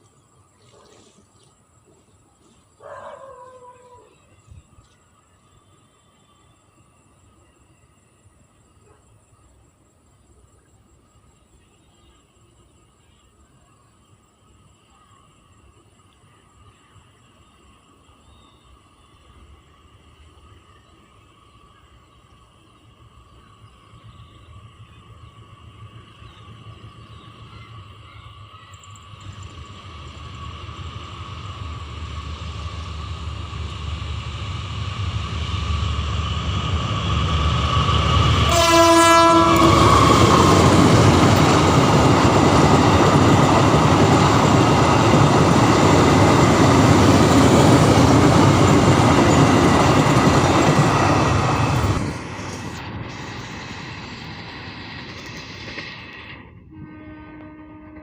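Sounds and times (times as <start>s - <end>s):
train wheels rumbling on rail: 14.1s - 58.0s
train horn blast: 38.4s - 40.3s, 56.6s - 58.0s.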